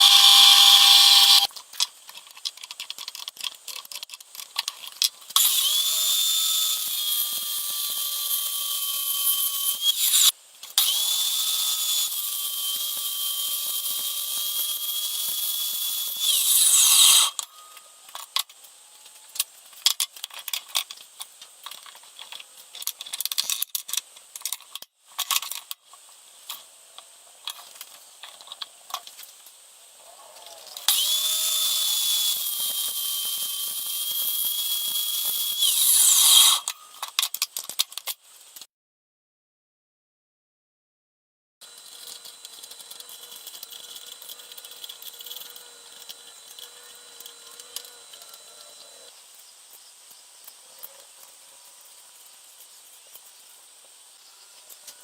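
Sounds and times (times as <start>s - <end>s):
motor whining at high pitch: 0.0s - 1.5s, 5.4s - 18.0s, 30.8s - 37.0s, 41.6s - 49.1s.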